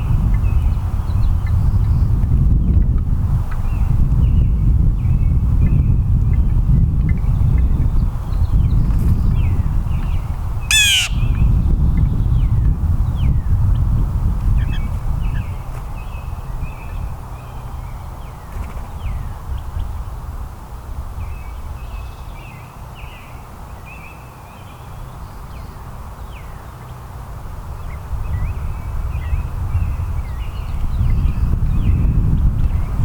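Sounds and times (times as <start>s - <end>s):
wind rumble on microphone: 0.0s - 33.0s
songbirds chirping: 7.2s - 12.5s.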